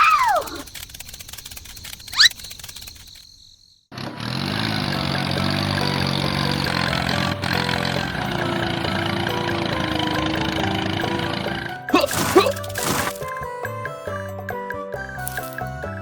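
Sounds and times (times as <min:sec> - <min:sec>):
short rising chirp: 0:02.0 - 0:02.9
engine-like sound: 0:03.9 - 0:13.3.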